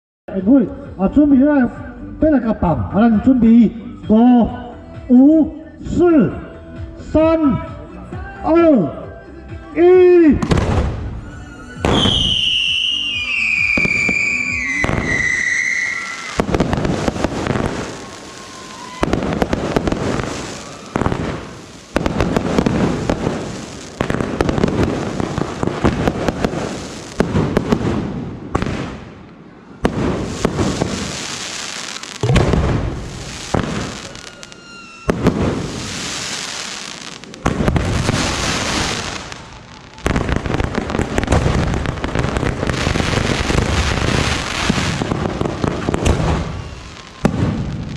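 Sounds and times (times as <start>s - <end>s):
dense crackling of fireworks: 10.3s - 47.9s
fireworks bursting with loud bang: 10.4s - 47.9s
thin firework whistles: 11.0s - 27.2s, 30.1s - 47.9s.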